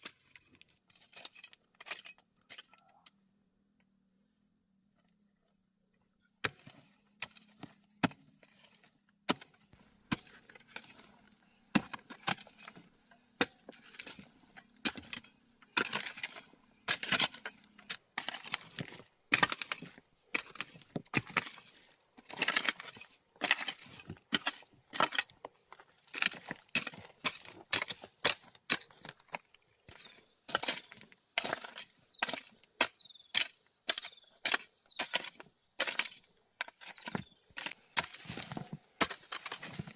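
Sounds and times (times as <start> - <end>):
hand tool striking stone: 6.4 - 8.3, 9.3 - 39.9.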